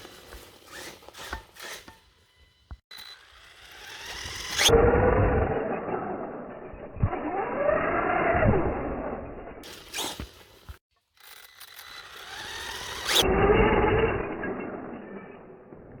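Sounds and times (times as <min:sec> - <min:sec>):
tyres on rough ground: 0:00.0 - 0:04.7, 0:09.6 - 0:10.9
electric motor whining: 0:00.6 - 0:10.8, 0:11.4 - 0:14.8.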